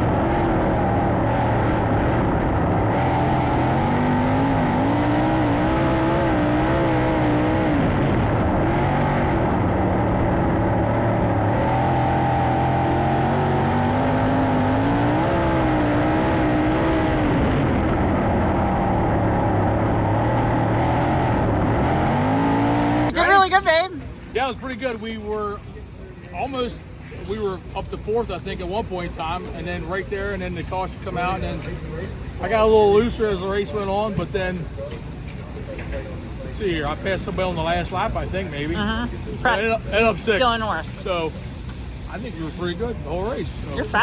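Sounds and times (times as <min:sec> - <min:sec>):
racing car engines revving: 0:00.0 - 0:25.7.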